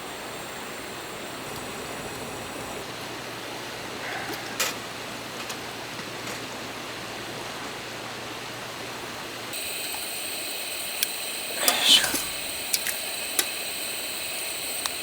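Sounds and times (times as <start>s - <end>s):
steady rushing hiss: 0.0s - 4.1s, 8.2s - 15.0s.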